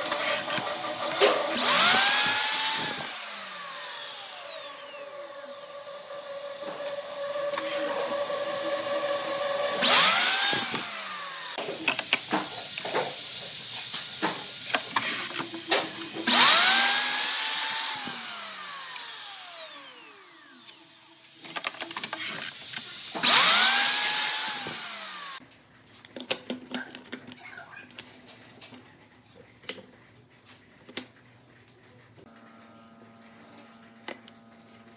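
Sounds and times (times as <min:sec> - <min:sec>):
power tool motor spinning: 0:00.0 - 0:25.4.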